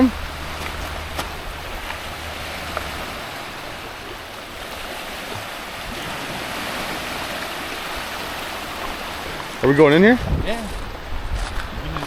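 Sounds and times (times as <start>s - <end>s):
water rushing at shore: 0.0s - 12.0s.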